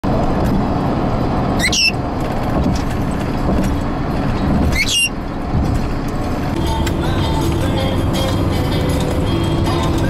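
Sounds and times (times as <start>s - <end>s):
car road rumble: 0.0s - 10.0s
parrot squawk: 1.6s - 2.0s, 4.7s - 5.1s.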